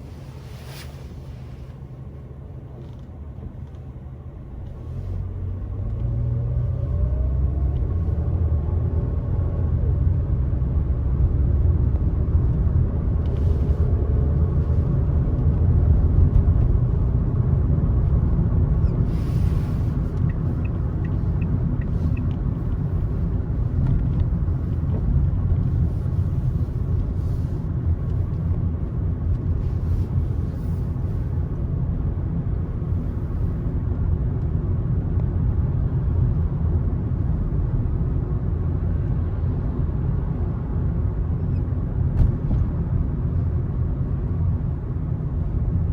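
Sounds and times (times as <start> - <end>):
car road and engine rumble: 0.0 - 45.9.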